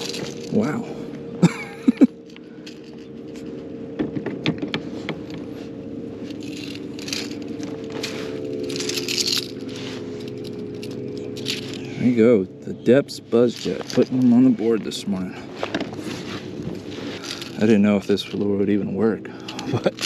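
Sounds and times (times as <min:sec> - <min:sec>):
fish and hooks rattling: 0:00.0 - 0:00.8, 0:01.5 - 0:03.7, 0:04.7 - 0:12.2, 0:13.4 - 0:15.0, 0:15.7 - 0:18.7, 0:19.3 - 0:20.0
steady low hum: 0:00.0 - 0:20.0.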